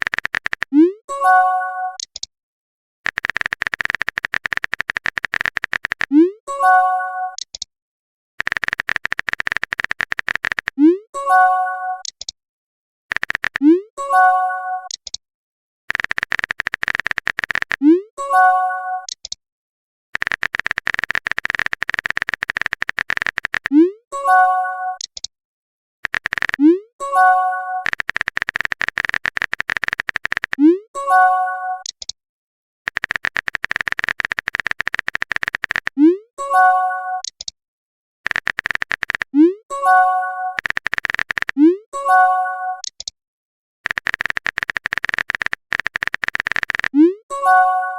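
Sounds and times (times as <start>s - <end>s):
fast electronic clicks: 0.0s - 1.0s, 2.0s - 2.3s, 3.0s - 6.4s, 7.3s - 7.7s, 8.4s - 11.0s, 12.0s - 12.4s, 13.1s - 13.9s, 14.8s - 15.2s, 15.9s - 18.1s, 19.0s - 19.4s, 20.2s - 24.0s, 25.0s - 25.3s, 26.0s - 30.8s, 31.8s - 32.2s, 32.9s - 36.2s, 37.2s - 37.6s, 38.2s - 41.9s, 42.8s - 43.2s, 43.8s - 47.2s.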